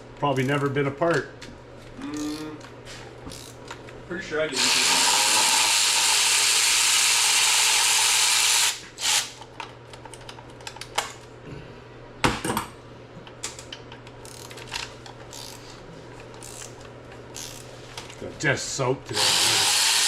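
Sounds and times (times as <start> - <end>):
power tool running: 4.5 - 9.4, 19.1 - 20.0.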